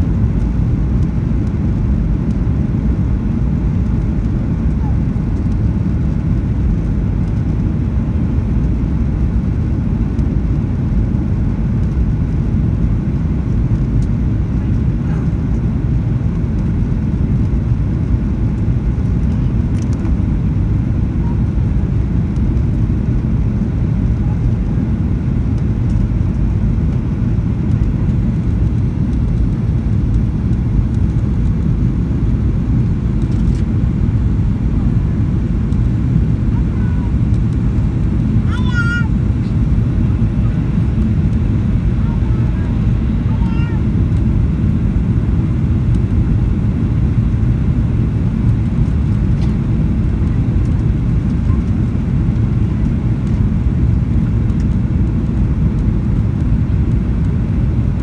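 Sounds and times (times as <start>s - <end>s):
airplane cabin engine rumble: 0.0s - 58.0s
faint clicks: 19.2s - 20.1s.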